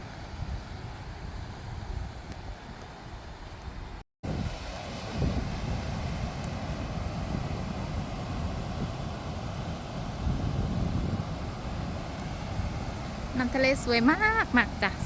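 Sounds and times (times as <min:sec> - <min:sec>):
wind buffeting microphone: 0:00.0 - 0:15.0
sea surf rushing: 0:04.2 - 0:15.0.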